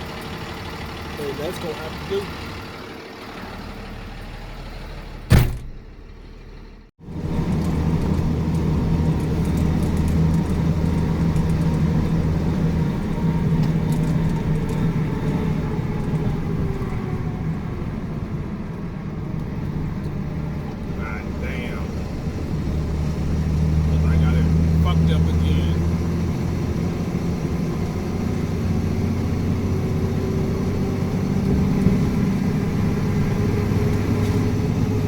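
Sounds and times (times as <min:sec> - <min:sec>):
truck engine running: 0:00.0 - 0:35.0
sharp slam: 0:05.3 - 0:06.1.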